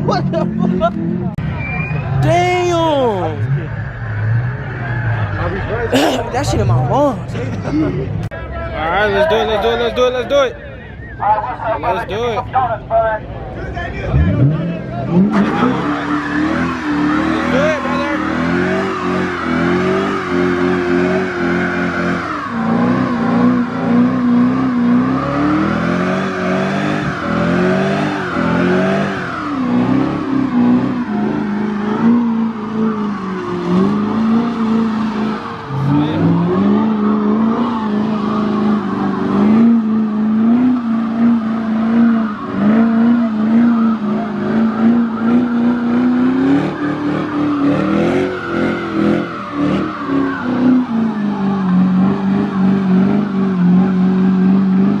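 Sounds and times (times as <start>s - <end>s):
car engine revving hard: 14.1s - 55.0s
tyres squealing: 15.2s - 29.7s.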